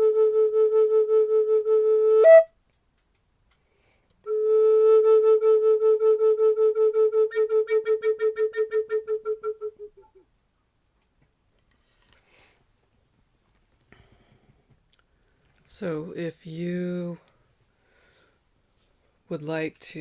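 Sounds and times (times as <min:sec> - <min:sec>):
flute long notes: 0:00.0 - 0:02.5, 0:04.2 - 0:10.2.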